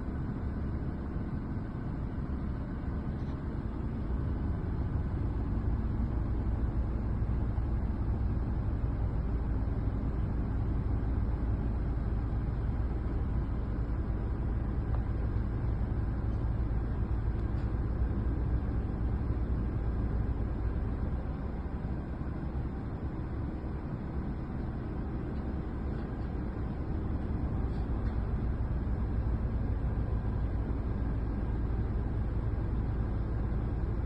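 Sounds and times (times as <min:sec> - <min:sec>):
heavy machinery engine running: 0:00.0 - 0:34.0.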